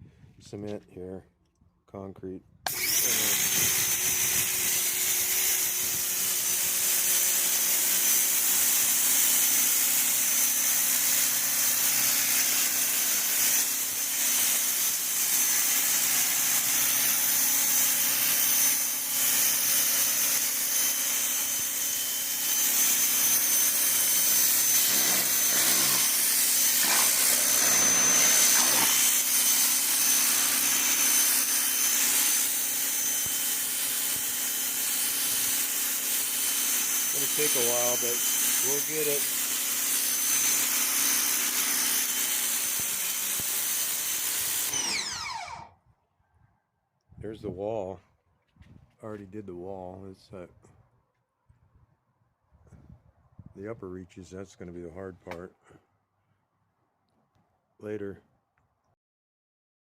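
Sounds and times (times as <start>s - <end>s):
pressure washer motor humming: 2.7s - 45.7s
water jet spraying concrete: 24.4s - 29.2s, 37.1s - 39.8s.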